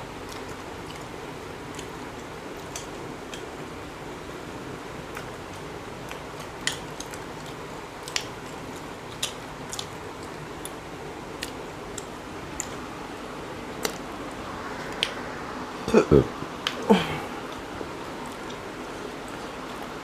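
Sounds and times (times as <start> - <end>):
chewing with mouth clicks: 0.2 - 3.6, 5.0 - 12.9, 16.6 - 19.9.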